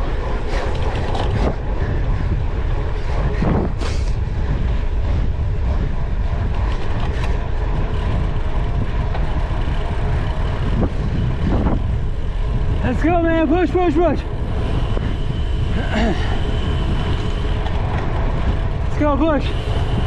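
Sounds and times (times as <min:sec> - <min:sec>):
bike rattling over rough grass: 0:00.0 - 0:20.0
wind rumbling on microphone: 0:00.0 - 0:20.0.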